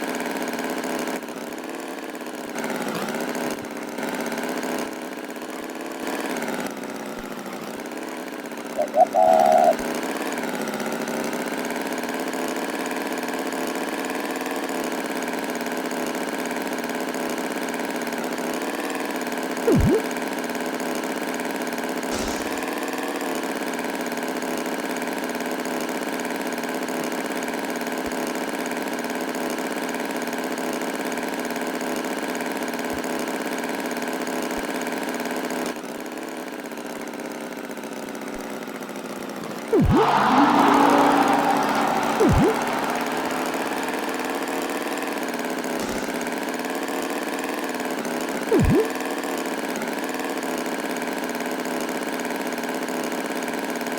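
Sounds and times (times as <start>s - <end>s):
falling swoop: 39.8s - 45.0s.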